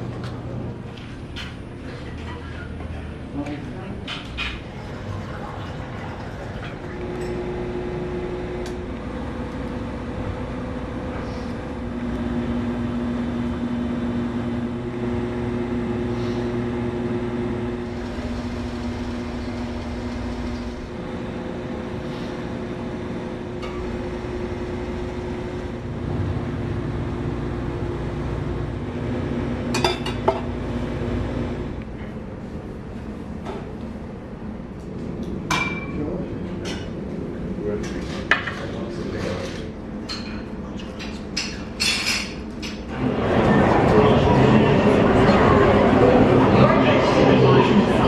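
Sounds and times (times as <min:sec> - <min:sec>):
mechanical hum and low rumble: 0:00.0 - 0:48.0.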